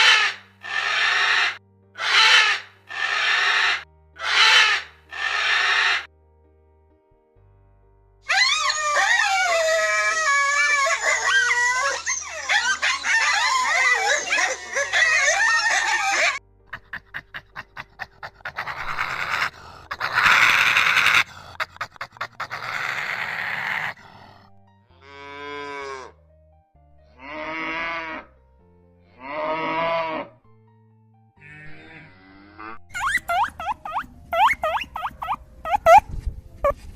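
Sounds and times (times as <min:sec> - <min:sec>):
overlapping animal calls: 0:00.0 - 0:06.1, 0:08.3 - 0:16.4, 0:17.5 - 0:24.0, 0:32.9 - 0:36.8
pitched animal calls: 0:00.0 - 0:06.1, 0:08.3 - 0:16.4, 0:17.7 - 0:24.0, 0:32.9 - 0:36.8.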